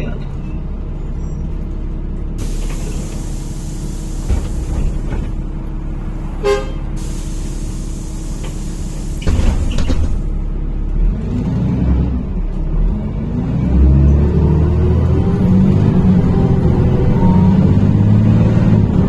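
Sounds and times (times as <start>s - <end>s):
bus engine running: 0.0s - 19.0s
compressed air hissing: 2.4s - 5.1s, 7.0s - 10.3s
short horn toot: 6.4s - 7.2s.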